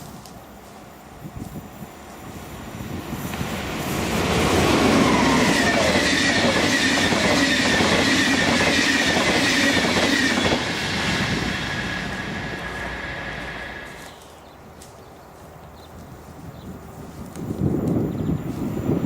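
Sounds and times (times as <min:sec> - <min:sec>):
train passing: 0:00.0 - 0:14.2
falling whine: 0:03.4 - 0:14.1.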